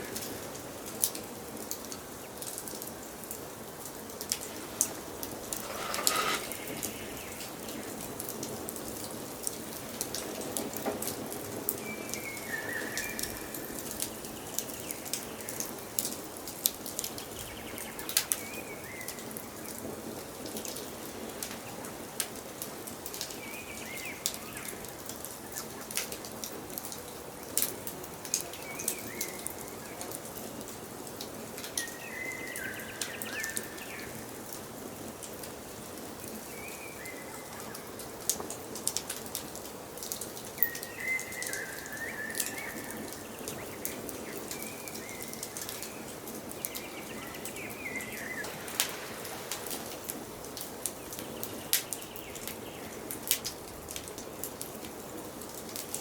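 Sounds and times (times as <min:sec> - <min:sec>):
wood fire crackling and popping: 0:03.8 - 0:08.8, 0:48.4 - 0:56.0.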